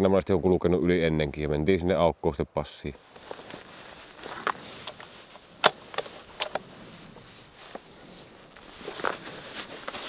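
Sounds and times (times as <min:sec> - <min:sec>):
clothing rustling: 0:03.0 - 0:10.0
sharp clicks of gear: 0:04.4 - 0:06.6.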